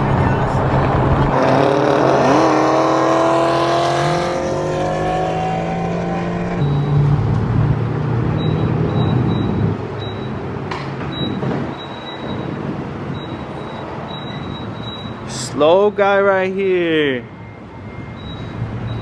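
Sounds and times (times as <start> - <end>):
car engine accelerating: 0.0 - 9.8
faint high beeping: 6.6 - 7.0, 16.9 - 19.0.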